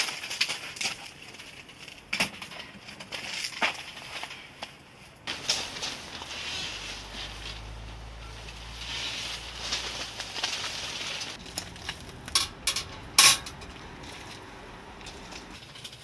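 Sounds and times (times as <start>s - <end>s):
rustling: 0.0s - 16.0s
objects clicking and knocking: 9.4s - 16.0s.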